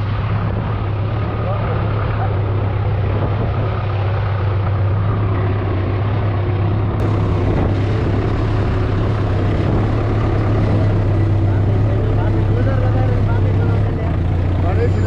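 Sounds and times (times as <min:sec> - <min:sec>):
tractor engine running: 0:00.0 - 0:15.0
flooded river rushing: 0:07.0 - 0:15.0.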